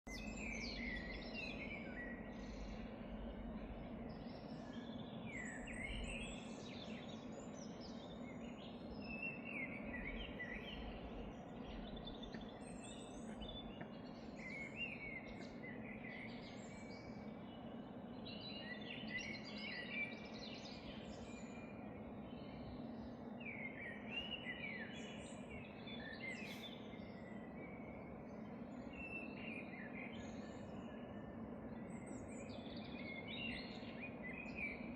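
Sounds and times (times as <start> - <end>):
low background hum: 0.1 - 34.9.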